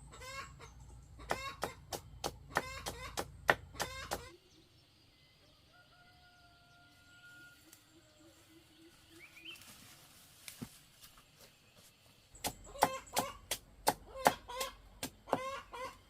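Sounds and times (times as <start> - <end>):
chickens clucking: 0.0 - 4.5, 12.4 - 16.0.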